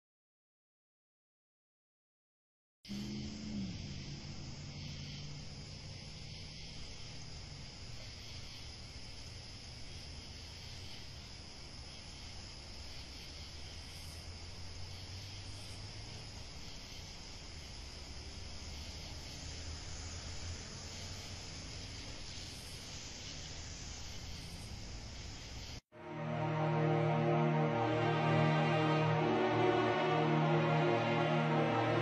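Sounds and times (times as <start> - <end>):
background hiss: 2.9 - 32.0.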